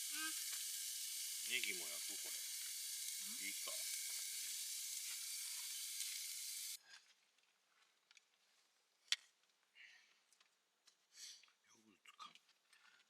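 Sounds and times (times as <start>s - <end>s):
garlic sizzling in hot oil: 0.0s - 6.8s.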